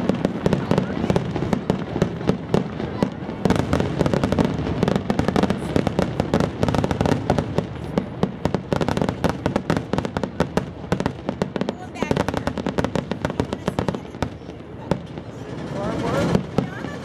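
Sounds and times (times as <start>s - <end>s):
fireworks popping and cracking: 0.0s - 17.0s.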